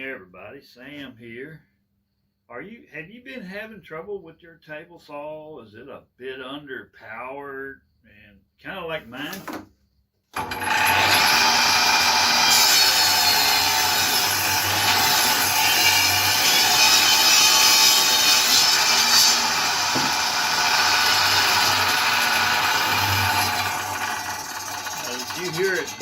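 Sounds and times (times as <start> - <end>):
table saw cutting wood: 10.4 - 26.0.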